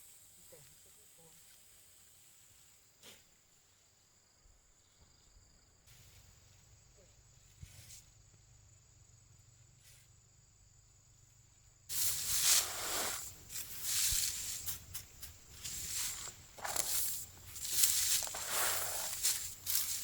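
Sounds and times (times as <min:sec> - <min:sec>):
loud rustling and scraping: 0:11.9 - 0:20.0.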